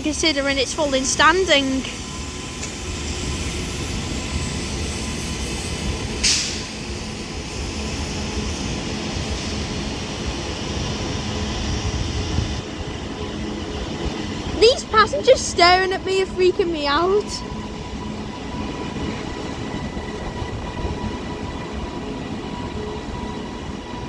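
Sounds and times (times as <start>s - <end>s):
electric train rumble and hum: 0.0s - 24.0s
short sharp hiss: 6.2s - 6.7s.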